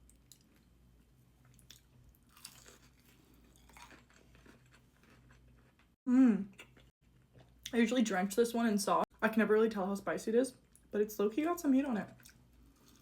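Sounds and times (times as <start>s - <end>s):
chewing and crunching food: 0.0s - 6.0s, 12.0s - 13.0s.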